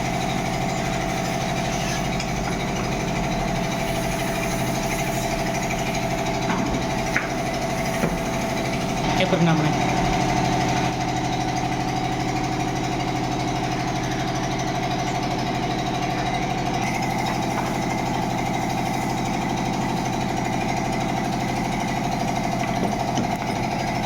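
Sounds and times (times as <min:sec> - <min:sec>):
water pump motor humming: 0:00.0 - 0:24.0.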